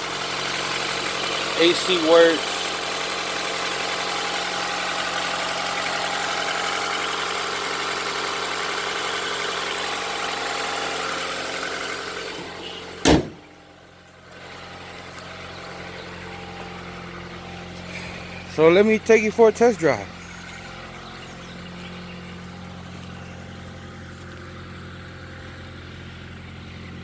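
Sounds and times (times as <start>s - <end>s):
car engine idling: 0.0s - 27.0s
car air conditioning blower rushing: 1.0s - 7.2s
sharp thump: 13.0s - 13.5s.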